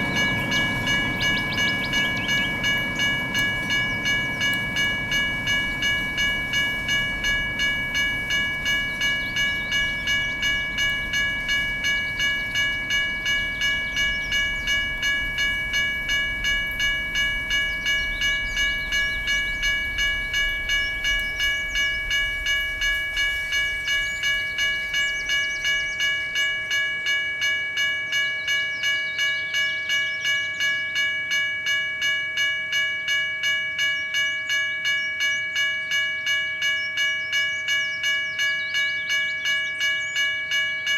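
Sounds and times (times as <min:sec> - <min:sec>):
freight train rumble: 0:00.0 - 0:31.3
railroad crossing bell ringing: 0:00.0 - 0:40.9.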